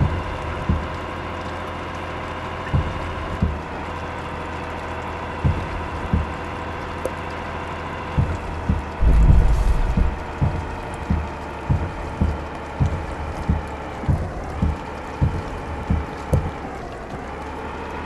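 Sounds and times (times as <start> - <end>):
truck engine drone: 0.0 - 18.0
low thumps: 8.2 - 16.6
heavy rumble: 8.2 - 17.2.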